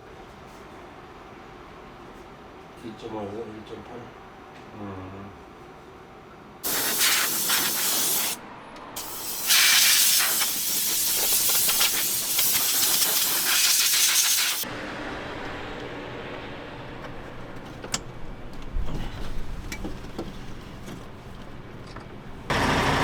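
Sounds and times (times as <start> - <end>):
high-pressure jet hissing: 6.6 - 8.4, 9.0 - 14.6.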